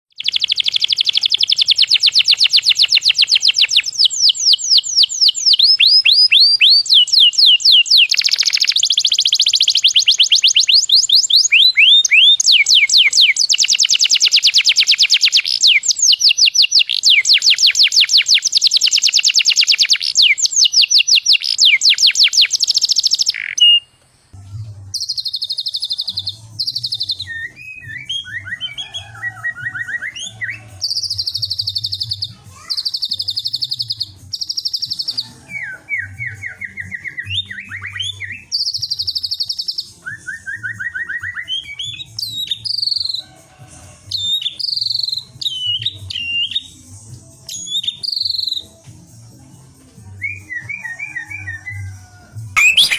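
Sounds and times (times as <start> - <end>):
bird singing fast whistled runs: 0.1 - 23.9, 25.0 - 28.9, 29.7 - 35.2, 52.6 - 52.9.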